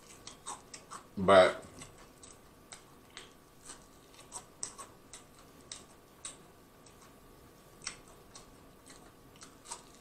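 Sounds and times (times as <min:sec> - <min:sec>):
wet mouth clicks: 0:00.0 - 0:07.2
person chewing crunchy food: 0:00.0 - 0:10.0.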